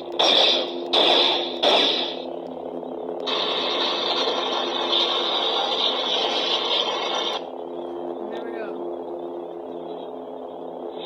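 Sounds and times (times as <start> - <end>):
toy lightsaber hum: 0.0 - 2.3, 3.2 - 7.4
lightsaber lockup effect: 0.2 - 2.2.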